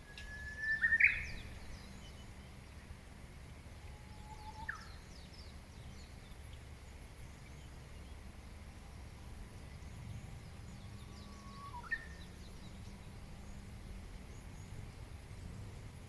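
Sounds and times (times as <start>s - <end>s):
wild birds calling faintly: 0.0s - 2.8s
whistled call rising in pitch: 0.2s - 1.4s.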